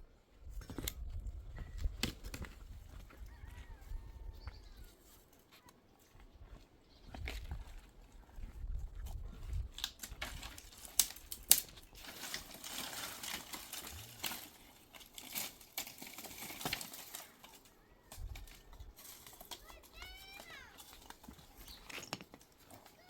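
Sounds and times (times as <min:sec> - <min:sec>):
rustling and scraping: 0:00.4 - 0:23.0
small clicks and knocks: 0:13.3 - 0:23.0.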